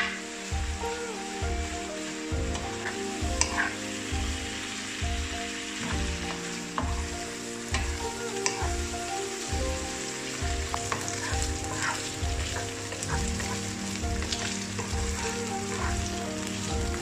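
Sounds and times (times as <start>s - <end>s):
chicken sizzling in hot oil: 0.0s - 17.0s
soft background music with beat: 0.0s - 17.0s
wooden spatula stirring: 2.4s - 3.8s, 9.6s - 17.0s.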